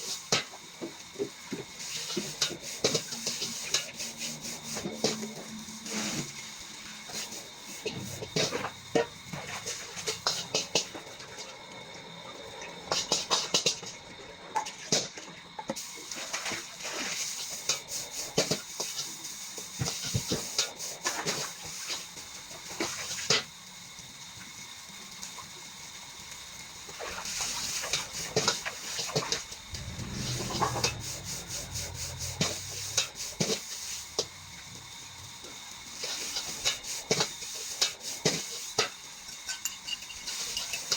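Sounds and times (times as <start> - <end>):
food sizzling: 0.0 - 13.9, 15.8 - 40.9
low rumble: 29.3 - 35.9.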